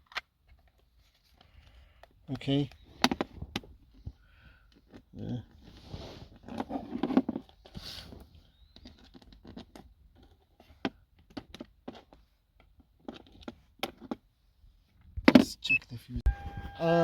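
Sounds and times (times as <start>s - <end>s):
rustling and scraping: 3.2s - 14.3s.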